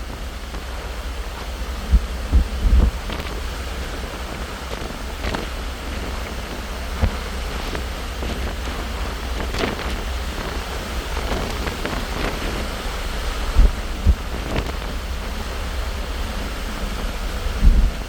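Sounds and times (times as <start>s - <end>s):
wind rushing over microphone: 0.0s - 18.0s
thumps on microphone: 1.9s - 3.3s, 7.0s - 7.3s, 13.5s - 14.8s, 17.6s - 18.0s.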